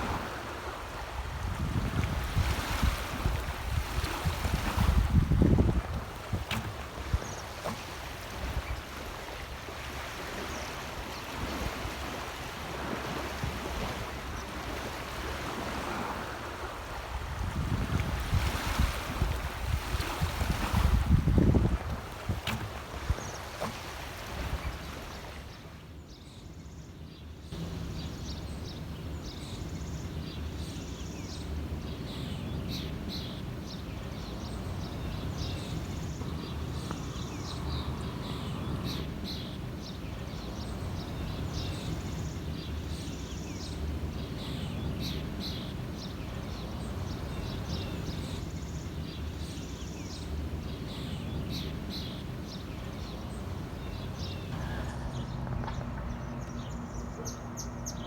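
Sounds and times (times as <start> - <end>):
steady low rumble: 52.7 - 58.0.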